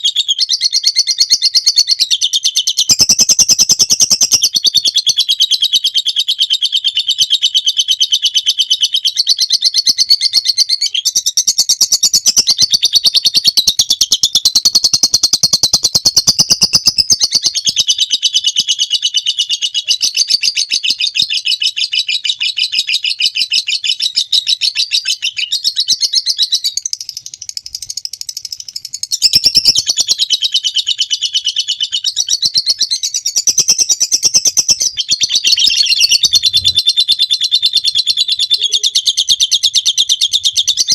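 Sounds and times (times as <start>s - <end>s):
lovebird high chattering trill: 2.8s - 5.3s, 10.8s - 20.7s, 26.4s - 32.2s, 32.9s - 40.9s.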